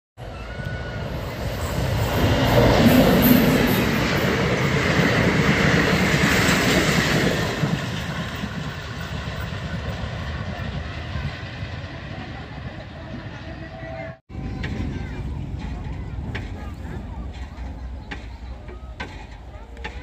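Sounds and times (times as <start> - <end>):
train wheels running over rails: 14.3 - 20.0.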